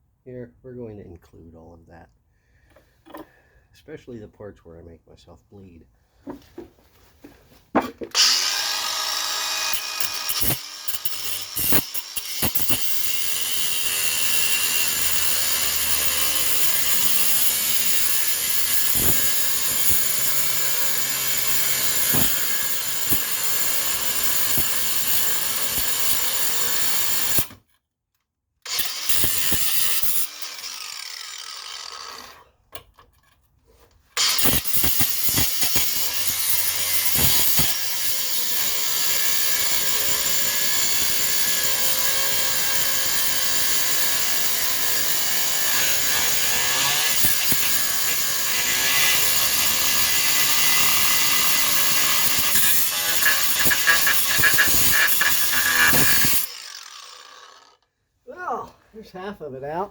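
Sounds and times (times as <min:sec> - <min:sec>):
cordless power tool cutting: 0:08.1 - 0:27.6, 0:28.7 - 0:32.5, 0:34.2 - 0:57.8.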